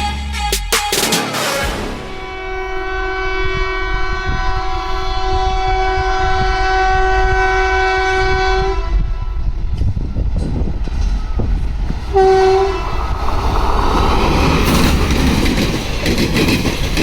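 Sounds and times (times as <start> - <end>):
train horn blast: 1.1 - 9.6, 12.0 - 13.2
train rumble and wheel clicks: 2.1 - 17.0.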